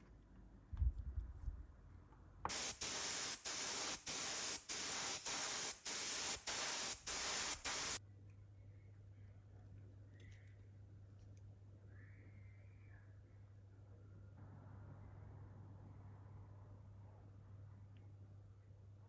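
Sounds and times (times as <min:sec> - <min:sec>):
spray paint hissing bursts: 0:02.5 - 0:08.0.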